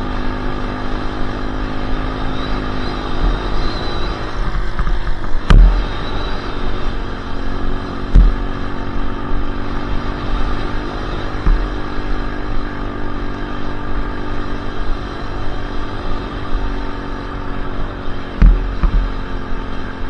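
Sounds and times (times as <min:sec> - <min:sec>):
dirt bike engine running: 0:00.0 - 0:20.0
sharp knock: 0:05.5 - 0:06.2, 0:08.2 - 0:08.8, 0:11.5 - 0:12.1, 0:18.4 - 0:19.3.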